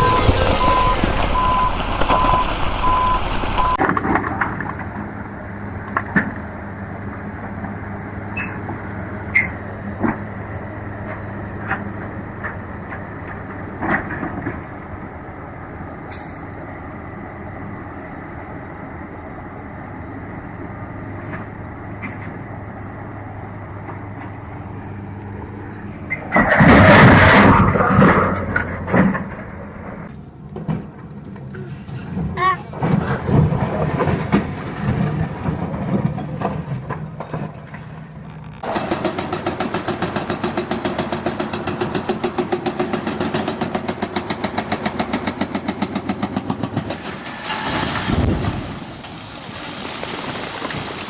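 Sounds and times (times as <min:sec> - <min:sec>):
loud rushing noise: 0:00.0 - 0:03.8
reversing alarm beeping: 0:00.0 - 0:03.8
steady engine hum: 0:00.0 - 0:47.2
loud engine and machinery noise: 0:00.0 - 0:51.0
short squeaks: 0:08.3 - 0:08.6, 0:09.3 - 0:09.6.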